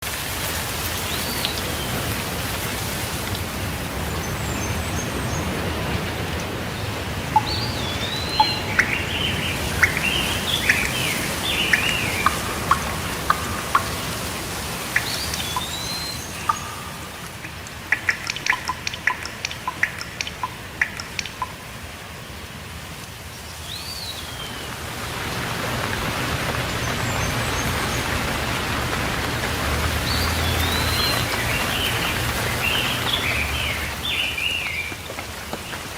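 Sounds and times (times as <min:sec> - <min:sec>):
steady rain: 0:00.0 - 0:35.9
birds chirping: 0:04.0 - 0:21.7, 0:29.8 - 0:35.1
bird whistled call: 0:07.4 - 0:14.1, 0:15.0 - 0:17.2
sharp ticks: 0:07.4 - 0:21.7.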